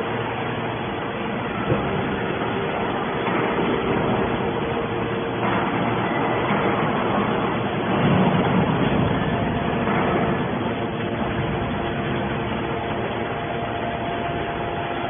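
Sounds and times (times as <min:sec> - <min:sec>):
hydraulic baler machine running: 0:00.0 - 0:15.0.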